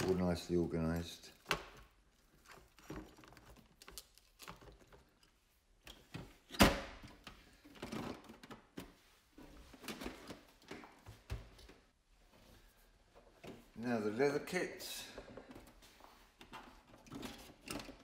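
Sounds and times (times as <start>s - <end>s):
plastic boxes clicking and knocking: 1.3s - 8.9s, 16.4s - 18.0s.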